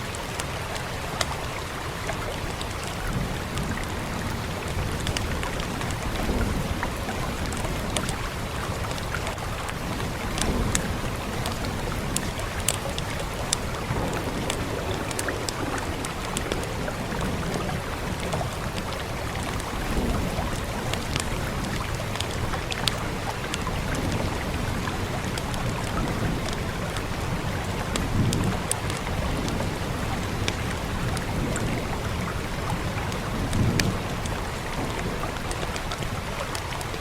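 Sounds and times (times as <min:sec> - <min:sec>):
rain hiss: 0:00.0 - 0:37.0
fireplace crackling: 0:09.5 - 0:19.7.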